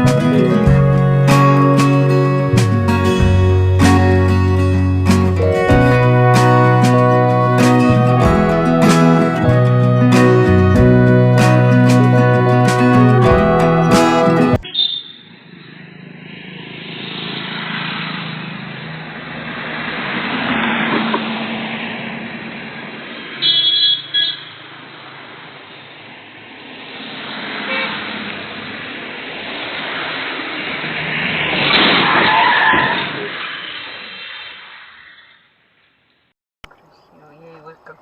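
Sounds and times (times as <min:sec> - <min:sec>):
road traffic: 0:00.0 - 0:38.0
car horn blasts: 0:05.5 - 0:15.2, 0:23.4 - 0:24.6, 0:27.7 - 0:28.0.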